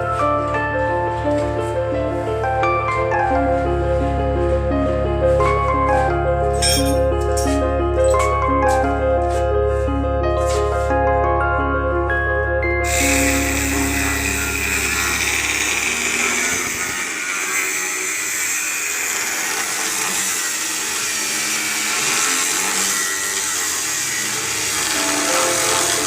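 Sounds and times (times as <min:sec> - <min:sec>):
power tool running: 0:12.8 - 0:26.0.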